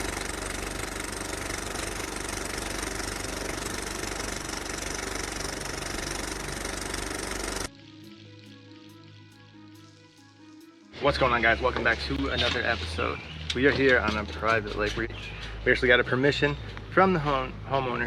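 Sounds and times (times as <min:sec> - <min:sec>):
loud pulsing mechanical engine noise: 0:00.0 - 0:07.7.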